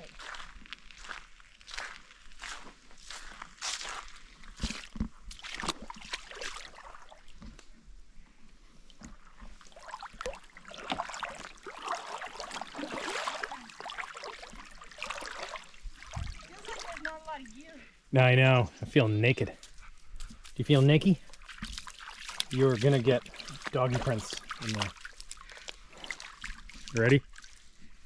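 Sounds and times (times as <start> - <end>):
water sloshing and splashing: 0.0 - 18.1, 19.6 - 28.0
knocks and clunks on canoe: 8.5 - 17.0.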